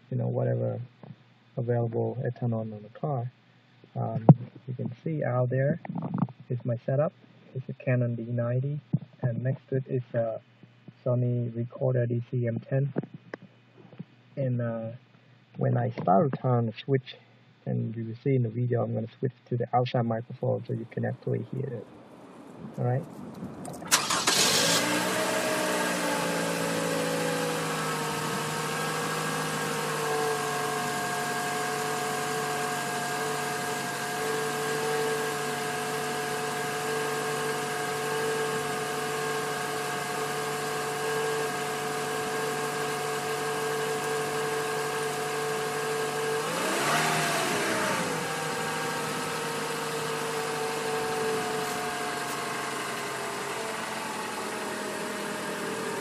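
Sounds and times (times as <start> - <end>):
car engine idling: 20.4 - 56.0.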